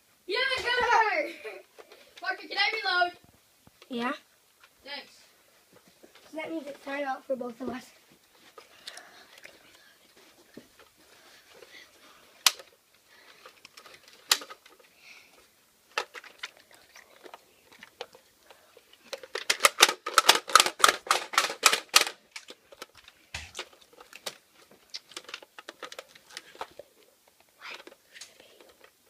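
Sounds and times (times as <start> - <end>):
sharp plastic clicks: 12.4 - 12.8, 13.4 - 14.8, 19.0 - 26.8.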